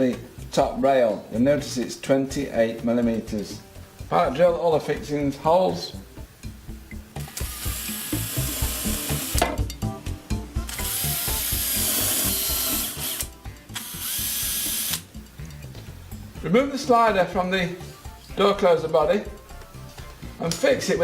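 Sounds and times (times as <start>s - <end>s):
power drill drilling into door: 7.2s - 9.4s, 10.7s - 15.0s.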